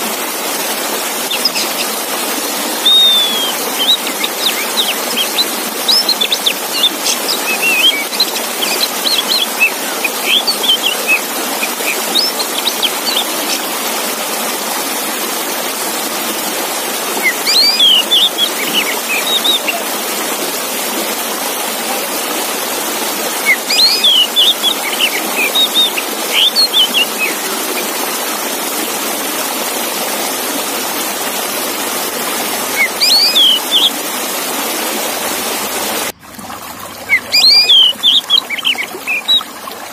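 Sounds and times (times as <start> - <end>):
running water: 0.0 - 39.9
bird singing whistled phrases: 2.8 - 13.6, 17.2 - 19.8, 23.4 - 27.8, 32.8 - 33.9, 37.1 - 39.5.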